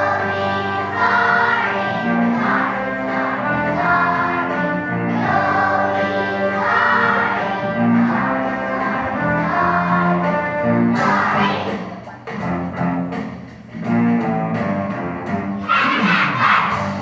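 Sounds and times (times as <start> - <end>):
children's choir singing: 0.0 - 12.4, 15.6 - 17.0
instrumental accompaniment: 0.0 - 15.7.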